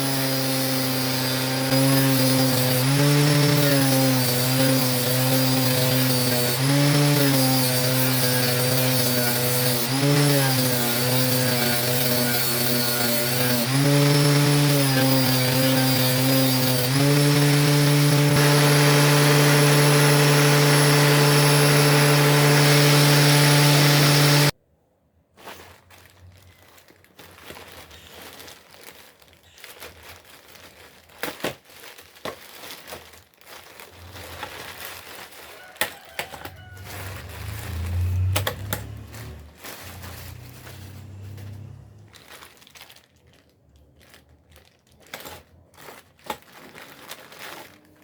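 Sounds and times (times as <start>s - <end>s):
power tool motor whining: 0.0s - 24.6s, 36.8s - 42.1s
rustling: 25.3s - 48.0s.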